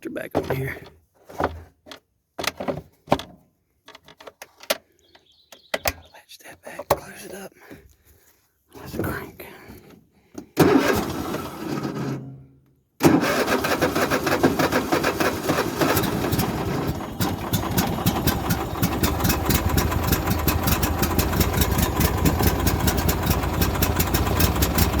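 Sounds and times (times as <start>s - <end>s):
lawnmower engine starting and running: 10.6s - 25.0s.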